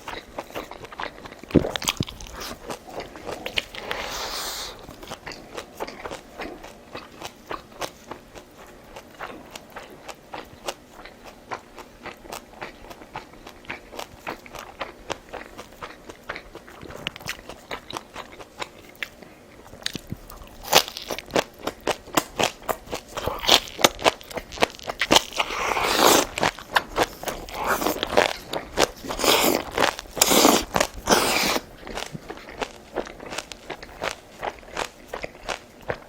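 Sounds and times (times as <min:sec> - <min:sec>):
person chewing and crunching food: 0:00.0 - 0:36.0
slurping: 0:01.0 - 0:07.2, 0:25.0 - 0:32.6.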